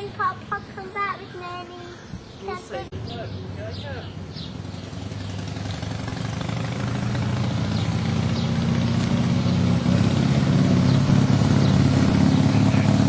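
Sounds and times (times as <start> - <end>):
motorcycle engine running: 4.1 - 13.0.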